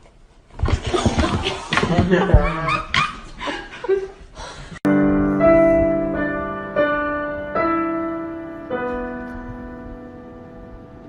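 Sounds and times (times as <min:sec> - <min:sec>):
slow piano chords: 0:04.8 - 0:11.0.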